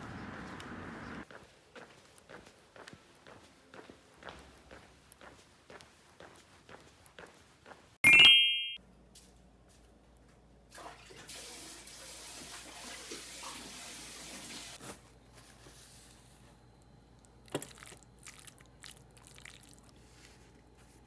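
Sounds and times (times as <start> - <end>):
water running from tap: 10.8 - 14.8.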